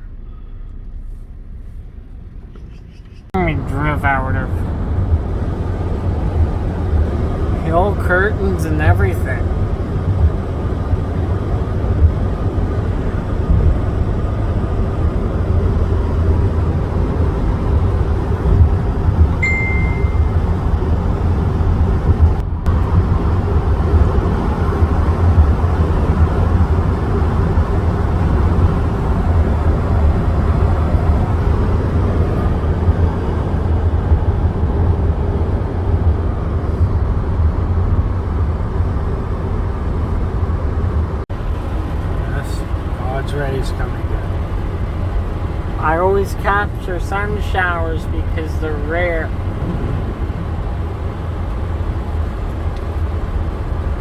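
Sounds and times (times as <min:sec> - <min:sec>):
car engine and tyre drone: 0:00.0 - 0:54.0
short high beep: 0:19.4 - 0:20.4.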